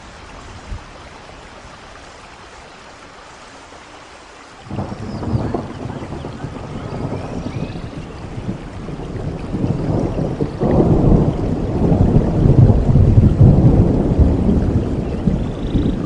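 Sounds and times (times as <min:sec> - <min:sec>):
steady rain: 0:00.0 - 0:16.0
thunder rumbling: 0:04.7 - 0:16.0.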